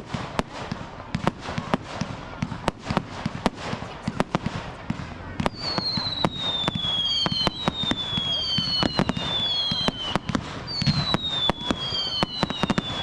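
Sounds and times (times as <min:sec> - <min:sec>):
fireworks bangs and crackles: 0:00.0 - 0:13.0
high falling firework whistle: 0:05.5 - 0:13.0.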